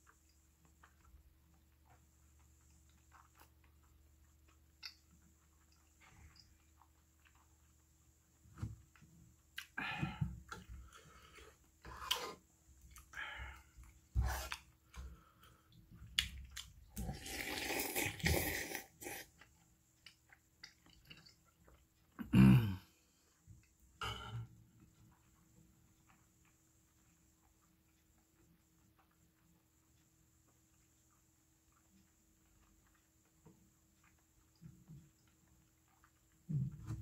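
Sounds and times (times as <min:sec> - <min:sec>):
chewing and wet mouth sounds: 0:00.0 - 0:22.3, 0:23.0 - 0:37.0
loud slurp from a spoon: 0:17.0 - 0:19.3.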